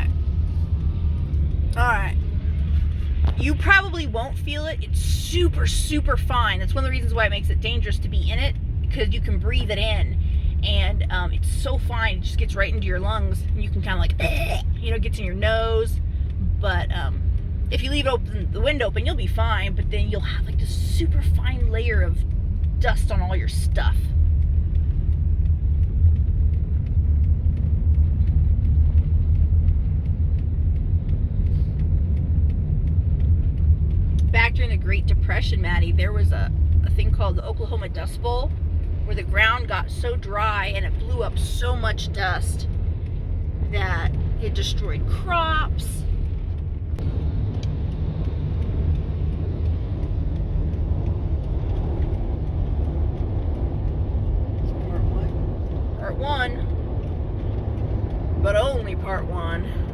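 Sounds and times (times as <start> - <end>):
car driving rumble: 0.0 - 59.9
faint light ticking: 7.5 - 59.9.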